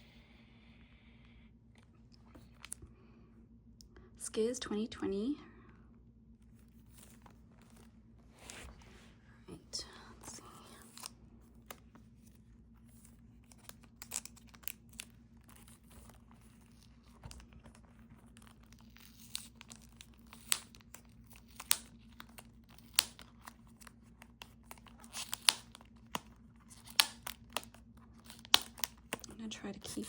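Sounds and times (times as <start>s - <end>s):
faint steady hum: 0.0s - 30.0s
plastic shrink-wrap crinkling: 12.8s - 29.3s.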